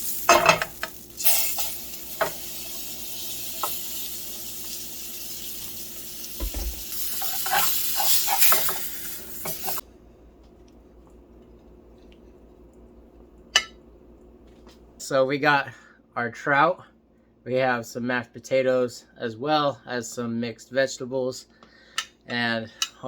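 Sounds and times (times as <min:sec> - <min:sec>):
fish sizzling in a pan: 0:00.0 - 0:09.8
utensil scraping a pan: 0:06.4 - 0:09.8.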